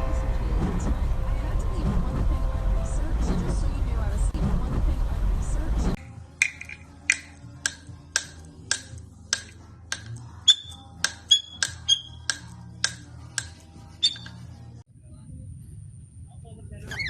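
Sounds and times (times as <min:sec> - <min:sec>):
sharp clicks with ringing tone: 0:06.4 - 0:14.4.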